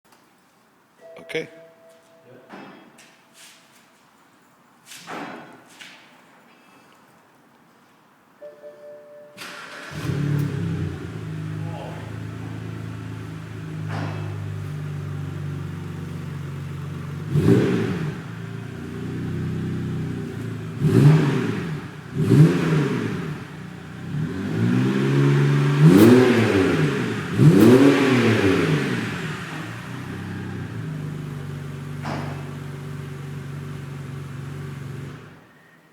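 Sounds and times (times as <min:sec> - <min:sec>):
car engine idling and revving: 0:09.5 - 0:35.6.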